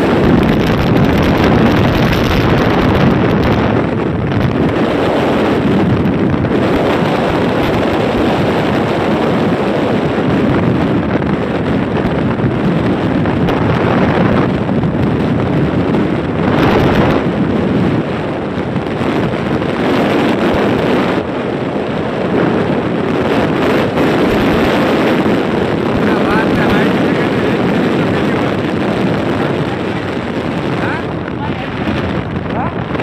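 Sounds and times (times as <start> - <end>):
bike ride rumble: 0.0 - 33.0
wind rushing over microphone: 0.0 - 33.0.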